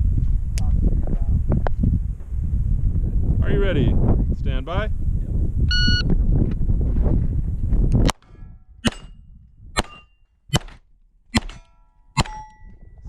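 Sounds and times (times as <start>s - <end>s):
wind on microphone: 0.0s - 10.6s, 12.2s - 13.0s
pistol shots: 8.8s - 9.2s, 9.8s - 12.6s
steel plate targets ringing: 11.3s - 12.9s.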